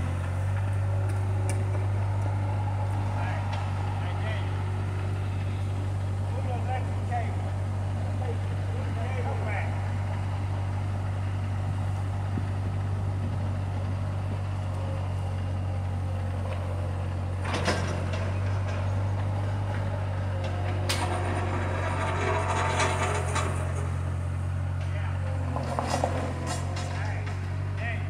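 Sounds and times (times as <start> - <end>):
skid-steer engine running: 0.0 - 28.0
bucket clattering and scraping asphalt: 20.5 - 24.1, 25.2 - 27.5.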